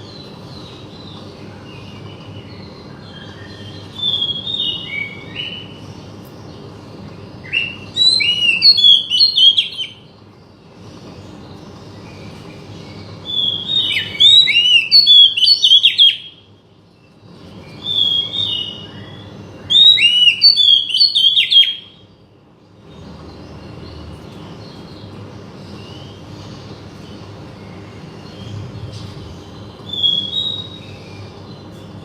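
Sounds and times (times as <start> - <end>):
bird singing whistles and chirps: 1.9 - 5.9, 7.4 - 10.1, 12.8 - 16.5, 17.6 - 22.0, 27.6 - 32.0.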